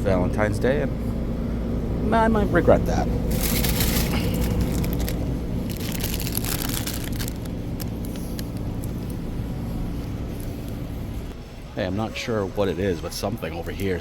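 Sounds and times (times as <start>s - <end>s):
air handling hum: 0.0s - 11.7s
plastic crinkling and rustling: 3.2s - 9.4s.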